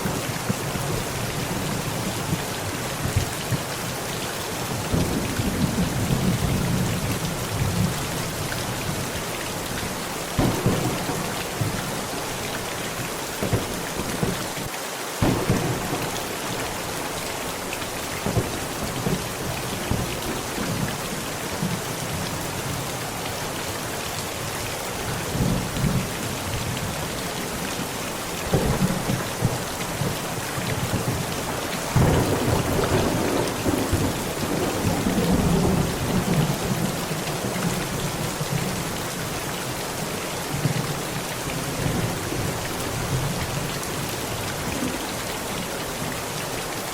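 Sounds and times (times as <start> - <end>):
heavy rain on a tent: 0.0 - 46.9
sharp thunder claps: 10.4 - 11.9, 15.2 - 16.6, 28.5 - 36.9
thunder rumbling: 10.4 - 14.6, 15.2 - 20.9, 28.5 - 38.7.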